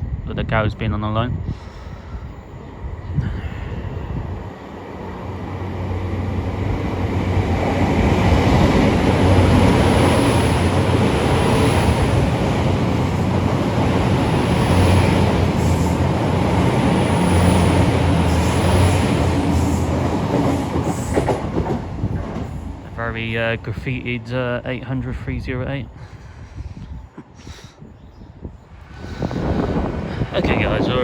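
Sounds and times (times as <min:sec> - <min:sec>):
train engines droning: 0:00.0 - 0:31.0
wheel and track rumble: 0:03.3 - 0:24.4.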